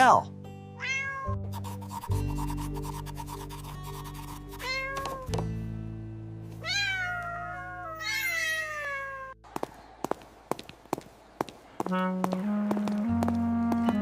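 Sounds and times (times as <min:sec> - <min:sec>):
cat meowing: 0:00.8 - 0:01.4, 0:04.6 - 0:05.3, 0:06.6 - 0:09.4
background music chords: 0:11.9 - 0:14.0.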